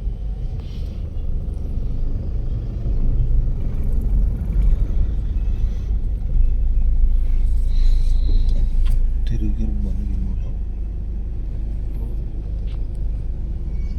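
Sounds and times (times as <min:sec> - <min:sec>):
vehicle engine rumbling: 0:00.0 - 0:13.9.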